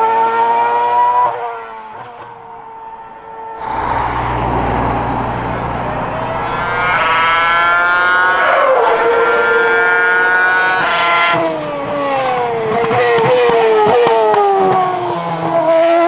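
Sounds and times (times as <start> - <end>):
formula one engine at high revs: 3.6 - 13.0.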